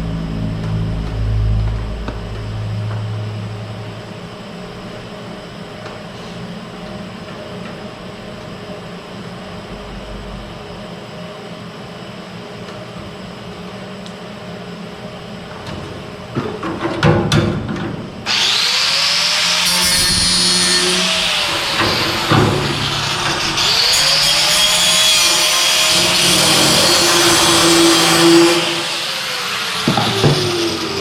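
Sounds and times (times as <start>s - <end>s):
deep drone: 0.0s - 5.8s, 9.0s - 11.0s, 18.2s - 25.3s
mechanical hum with fixed tones: 0.0s - 31.0s.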